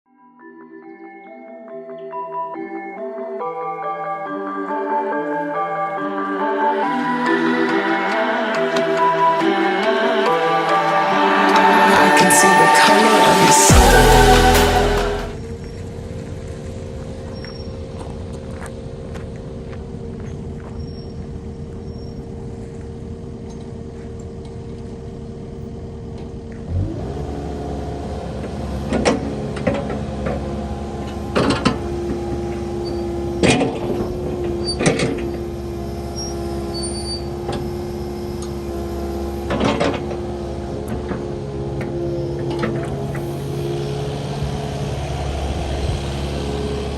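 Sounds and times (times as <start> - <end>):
excavator diesel engine running: 5.0 - 46.9
hydraulic whine: 24.8 - 46.9.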